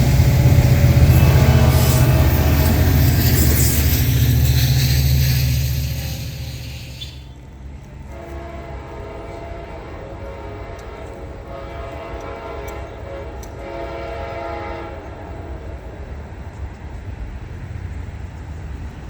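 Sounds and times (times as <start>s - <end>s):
locomotive horn chord: 0.0s - 4.4s, 8.1s - 15.1s
steady low rumble: 0.0s - 7.9s.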